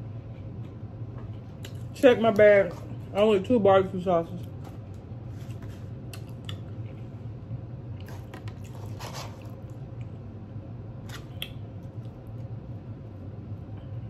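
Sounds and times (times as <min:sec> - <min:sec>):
steady low hum: 0:00.0 - 0:14.0
chewing food: 0:05.5 - 0:07.0, 0:08.0 - 0:10.2.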